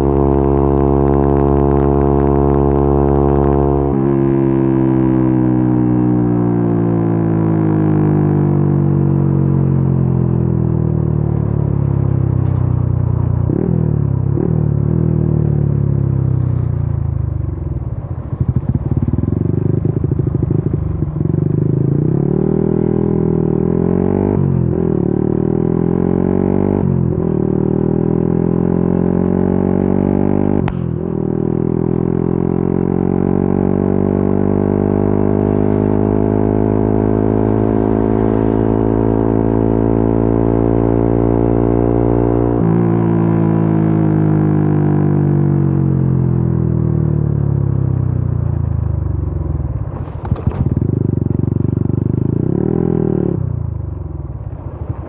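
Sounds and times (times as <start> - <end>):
motorcycle engine upshifting: 49.7 - 53.6.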